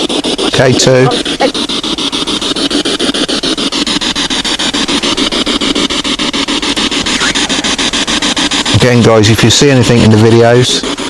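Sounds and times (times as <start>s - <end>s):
choppy radio static with clicks: 0.1s - 1.6s, 4.3s - 10.8s
radio sound fragments: 0.4s - 1.6s, 6.7s - 10.8s.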